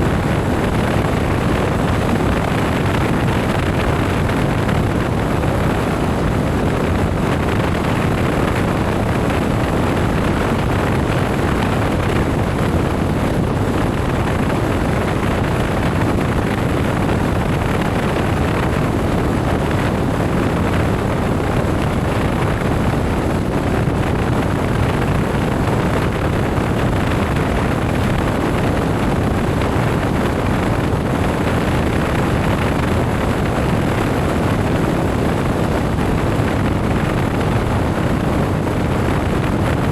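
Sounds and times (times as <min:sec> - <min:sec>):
wind buffeting microphone: 0:00.0 - 0:39.9
wind rushing: 0:00.0 - 0:39.9.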